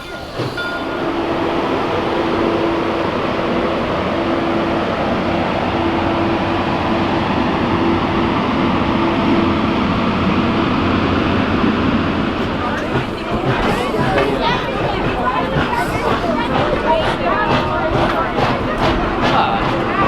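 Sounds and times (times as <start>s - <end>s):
steam train rumbling: 0.0s - 20.0s.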